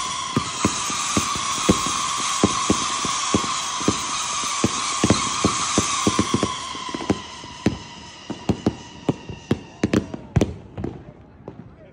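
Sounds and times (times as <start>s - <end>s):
fireworks whistling: 0.0s - 11.8s
fireworks bangs: 0.0s - 11.9s.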